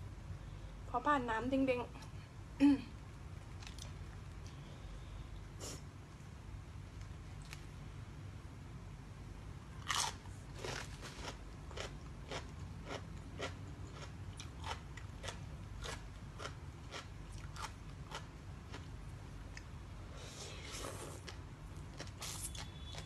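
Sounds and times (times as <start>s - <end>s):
person chewing crunchy food: 9.8s - 19.7s, 20.6s - 23.0s.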